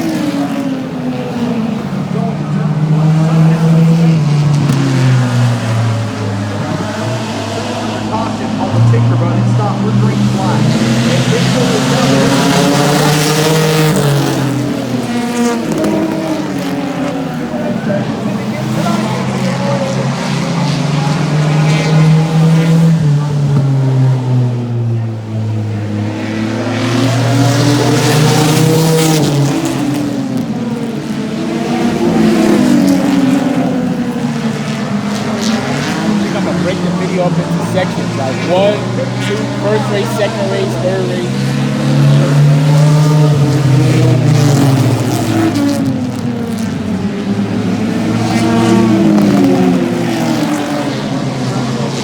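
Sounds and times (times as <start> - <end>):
race car engines passing: 0.0 - 52.0
steady low engine note: 1.2 - 14.8, 32.8 - 45.2.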